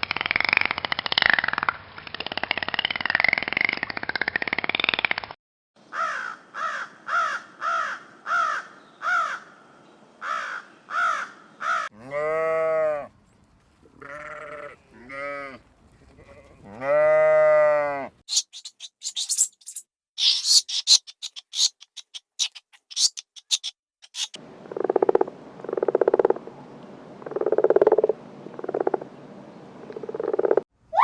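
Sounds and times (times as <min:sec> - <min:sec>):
sheep bleating: 0:11.9 - 0:13.1, 0:14.0 - 0:18.1
short harsh calls: 0:18.3 - 0:24.4.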